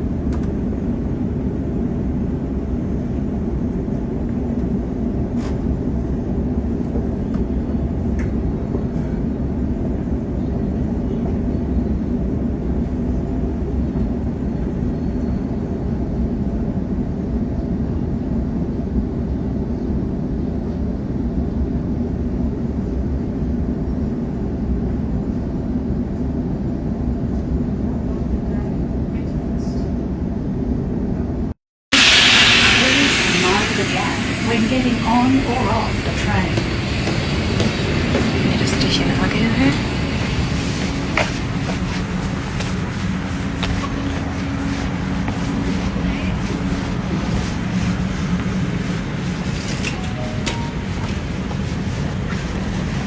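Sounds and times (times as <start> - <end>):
train wheels rumbling on track: 31.9 - 53.0.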